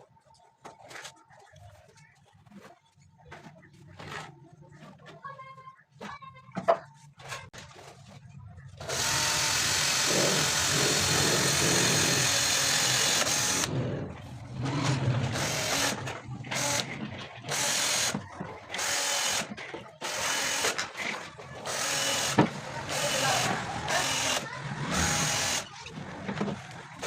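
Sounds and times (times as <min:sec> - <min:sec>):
electric power tool running: 0:08.8 - 0:20.8, 0:21.6 - 0:25.8.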